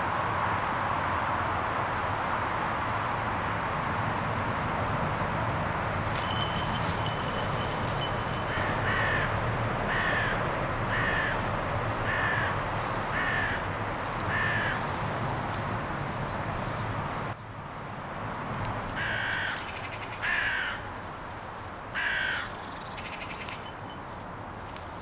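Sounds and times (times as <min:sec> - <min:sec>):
high ringing jingle: 0:06.0 - 0:09.5, 0:23.4 - 0:24.2
bird's harsh call: 0:07.6 - 0:13.7.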